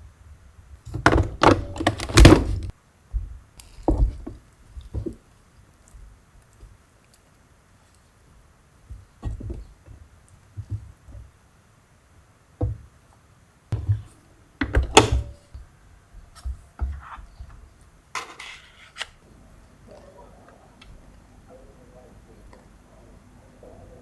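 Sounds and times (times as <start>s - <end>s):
objects knocking and thudding: 18.2s - 19.1s
sharp clicks: 18.2s - 19.2s.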